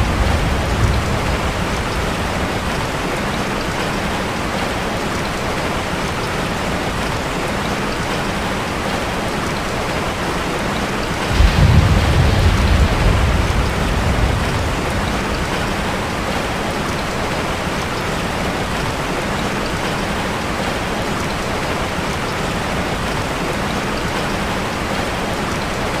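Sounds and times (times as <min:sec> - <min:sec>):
thunder rumbling: 0:00.0 - 0:03.8, 0:11.2 - 0:17.2
steady rain: 0:00.0 - 0:26.0.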